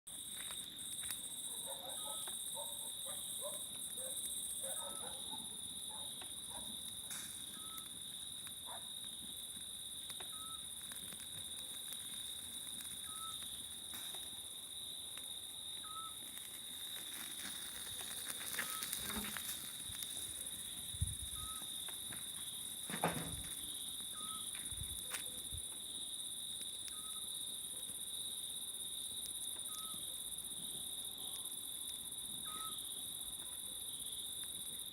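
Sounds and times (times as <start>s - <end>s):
campfire crackling: 0.1s - 34.9s
crickets and cicadas chorus: 0.1s - 34.9s
owl calling: 13.0s - 13.4s, 15.8s - 16.2s, 32.4s - 32.8s
campfire knocks: 21.8s - 23.7s.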